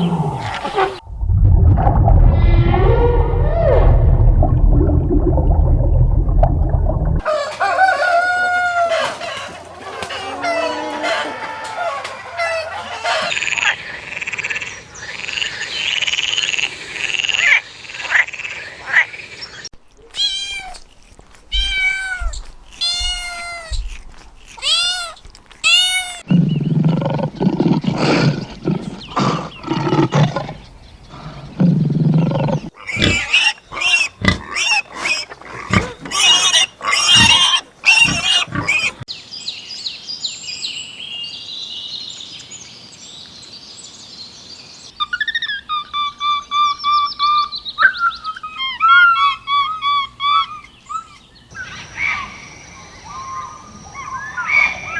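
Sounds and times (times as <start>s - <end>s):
deep low animal calls: 1.8s - 7.3s, 21.5s - 39.1s
animal calls rising and falling: 2.2s - 5.2s, 32.8s - 39.1s
sharp animal calls: 32.6s - 39.1s.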